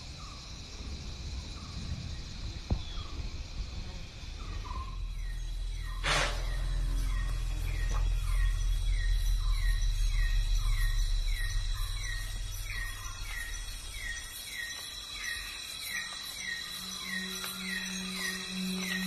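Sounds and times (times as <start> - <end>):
insect drone: 0.0 - 19.0
low rumble: 0.6 - 15.4.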